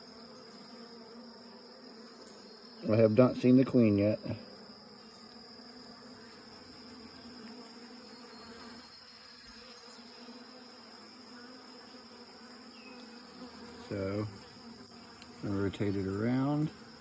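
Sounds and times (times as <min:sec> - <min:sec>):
honeybees humming: 0:00.0 - 0:17.0.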